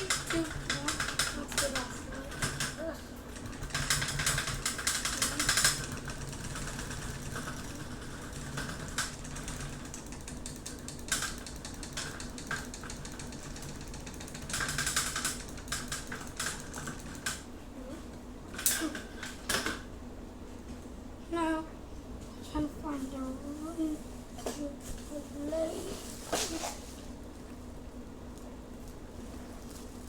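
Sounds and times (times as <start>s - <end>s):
rapid clicking and rattling: 0.0s - 17.5s
electric fan humming: 0.0s - 30.0s.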